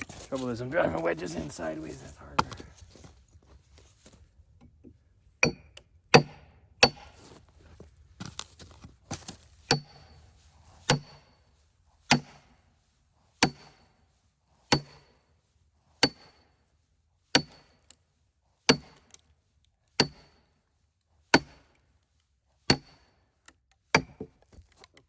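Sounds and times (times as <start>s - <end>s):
hammer clanging on steel wedge: 5.4s - 7.2s, 9.7s - 10.1s, 10.9s - 11.3s, 13.4s - 13.8s, 14.7s - 15.1s, 16.0s - 16.4s, 17.4s - 17.8s, 20.0s - 20.4s.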